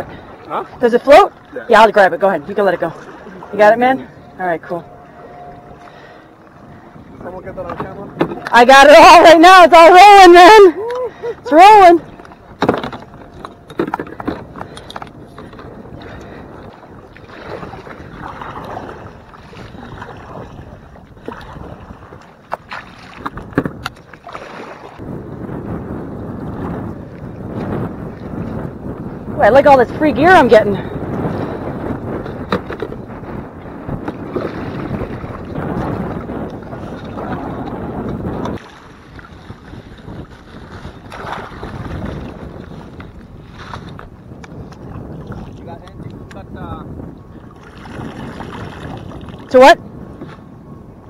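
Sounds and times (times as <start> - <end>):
water sloshing against hull: 0.0 - 25.2, 26.1 - 51.0
wind on microphone: 0.0 - 51.0
paddle strokes: 9.8 - 25.0, 33.9 - 45.6.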